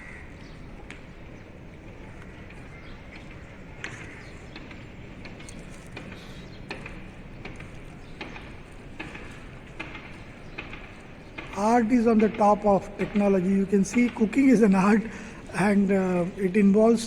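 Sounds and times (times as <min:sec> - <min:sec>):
steady background hiss: 0:08.2 - 0:17.0.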